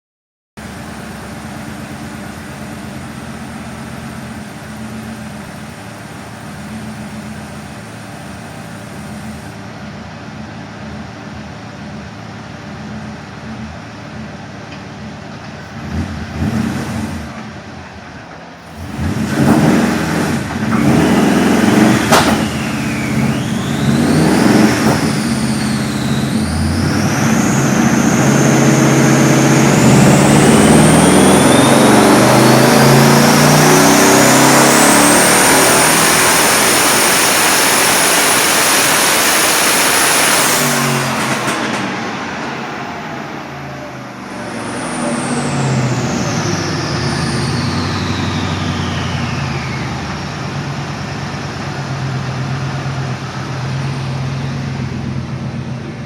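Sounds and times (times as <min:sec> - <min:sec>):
car engine revving: 0:15.6 - 0:17.8, 0:18.6 - 0:56.0
turbo whine: 0:18.6 - 0:51.1.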